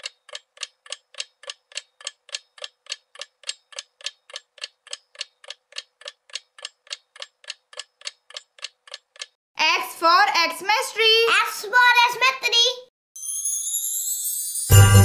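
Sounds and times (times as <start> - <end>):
clock ticking: 0.0 - 9.4.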